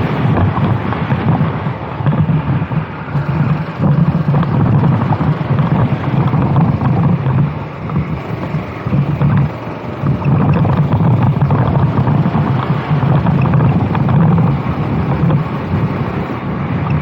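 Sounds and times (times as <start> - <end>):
kart engine racing: 0.0 - 17.0
wind buffeting microphone: 0.0 - 17.0.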